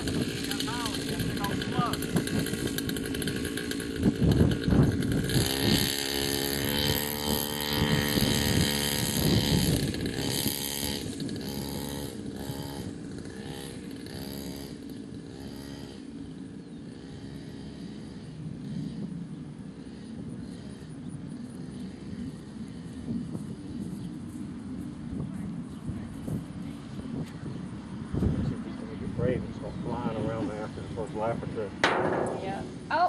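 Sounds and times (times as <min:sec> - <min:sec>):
mini dirt bike engine revving: 0:00.0 - 0:23.8.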